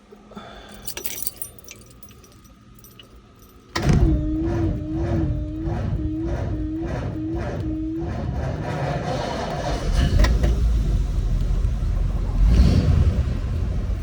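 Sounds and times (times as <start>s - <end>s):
engine cranking on starter: 3.7s - 13.5s.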